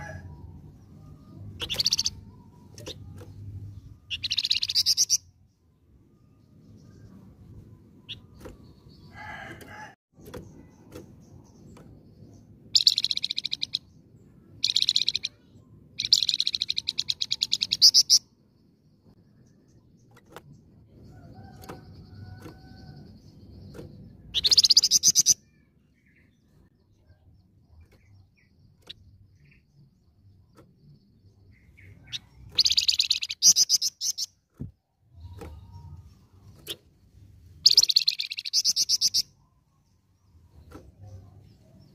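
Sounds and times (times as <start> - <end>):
songbird trilling: 1.5 - 3.0, 3.8 - 5.4, 12.7 - 13.9, 14.6 - 18.3, 24.3 - 25.7, 31.4 - 34.4, 37.6 - 39.5.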